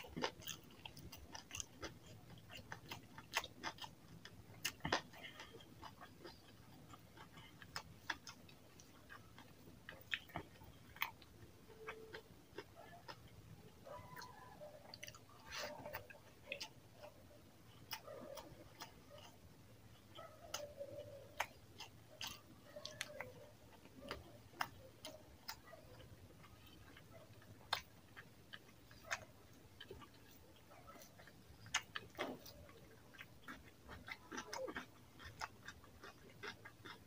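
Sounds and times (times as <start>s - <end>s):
wet chewing and lip smacks: 0.0s - 37.0s.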